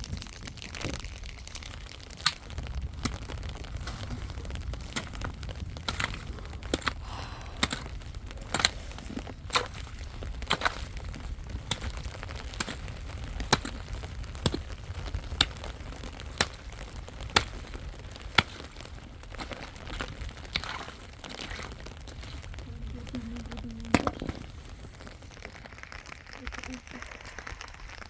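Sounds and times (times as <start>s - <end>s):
sharp knocks or cracks: 2.1s - 22.6s.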